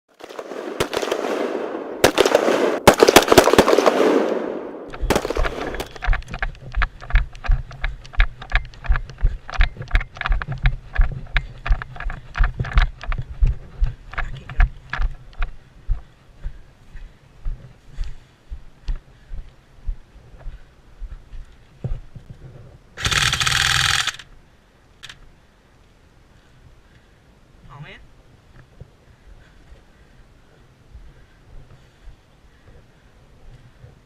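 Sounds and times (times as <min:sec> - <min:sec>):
airsoft gun shots: 0:00.3 - 0:06.1.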